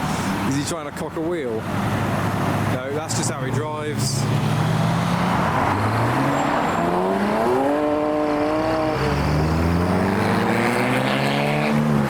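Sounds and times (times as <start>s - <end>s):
car engine pulling away: 3.9s - 12.0s.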